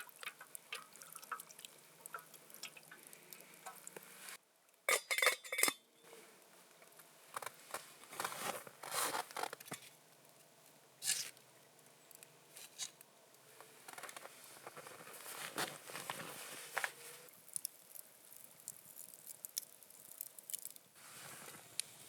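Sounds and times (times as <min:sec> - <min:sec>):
rustling and scraping: 0:07.3 - 0:10.0, 0:13.6 - 0:17.3, 0:21.0 - 0:21.8.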